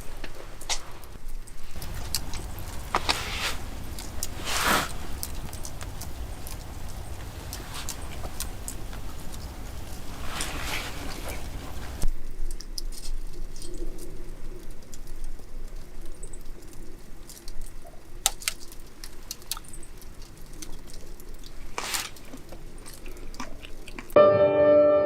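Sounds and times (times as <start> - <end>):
campfire crackling: 0.0 - 24.2
sharp pops: 1.7 - 12.0
music: 24.2 - 25.0.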